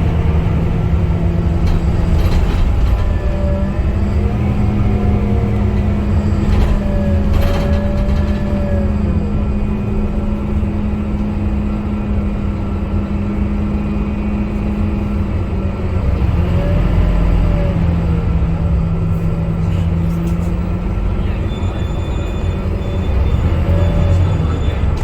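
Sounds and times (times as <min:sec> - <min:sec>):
bus diesel engine drone: 0:00.0 - 0:25.0.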